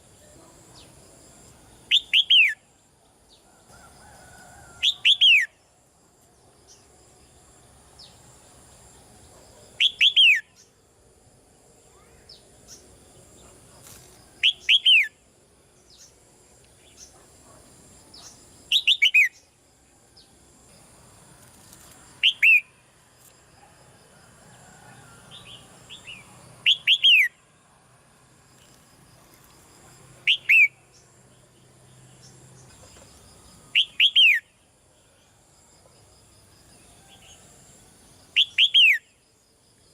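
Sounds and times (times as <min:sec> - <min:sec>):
faint bird chirps: 0:11.8 - 0:15.2.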